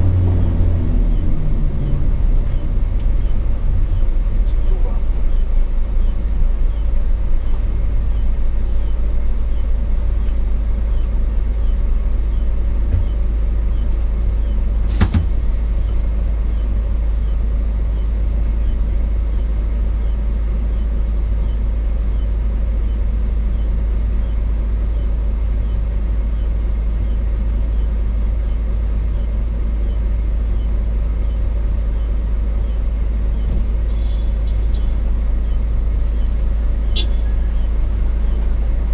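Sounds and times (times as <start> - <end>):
truck diesel engine rumble in cab: 0.0 - 38.9
sharp knock: 14.9 - 15.4.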